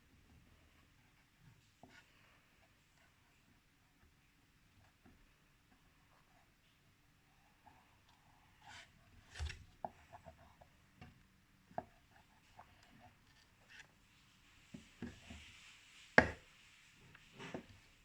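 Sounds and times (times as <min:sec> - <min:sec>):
paintbrush taps and rubbing on wood: 0:14.7 - 0:17.9.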